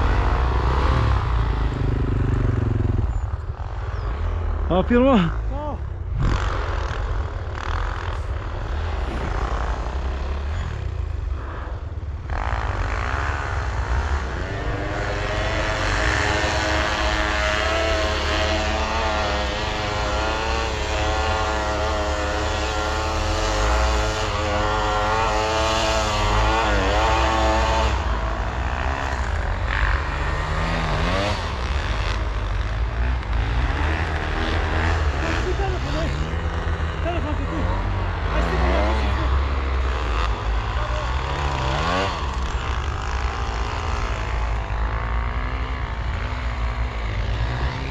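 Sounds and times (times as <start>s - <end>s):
dirt bike engine running: 0.0s - 47.9s
heavy low rumble: 4.4s - 17.3s.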